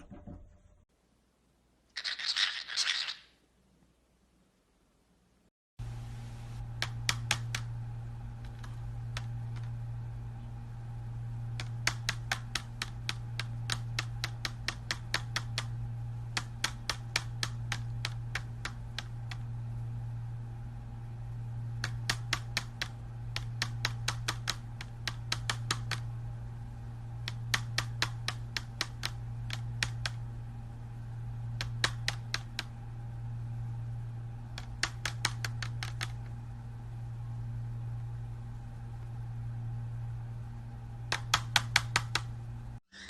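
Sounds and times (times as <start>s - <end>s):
steady low hum: 3.6s - 43.0s
sharp quick clicks: 11.6s - 19.4s, 21.8s - 26.0s, 27.2s - 30.2s, 31.6s - 32.7s, 34.6s - 36.3s, 41.1s - 42.3s.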